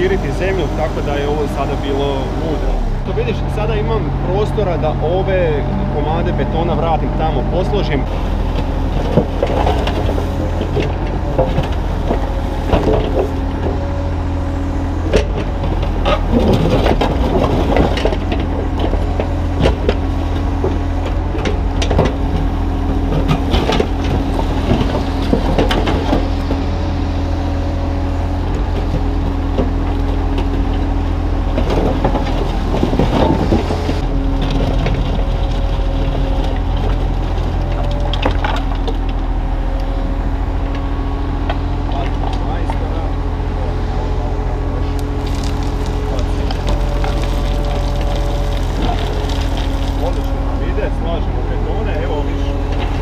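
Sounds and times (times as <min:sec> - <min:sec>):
excavator diesel engine running: 0:00.0 - 0:53.0
concrete chunks knocking and scraping: 0:45.0 - 0:50.4.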